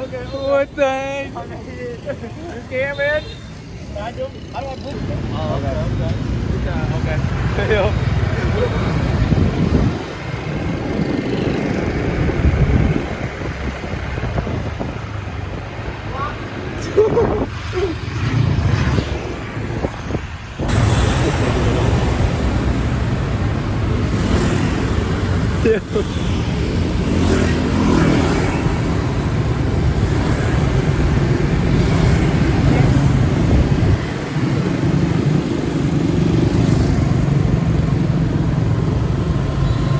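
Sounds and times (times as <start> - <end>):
motorbike engine and road noise: 3.7 - 39.9
wind on microphone: 8.9 - 16.1, 16.9 - 25.6, 28.6 - 35.8.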